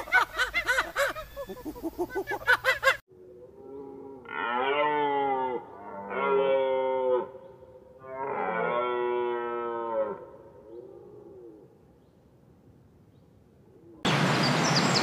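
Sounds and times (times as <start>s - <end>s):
cattle mooing: 3.5s - 7.4s, 8.0s - 10.3s.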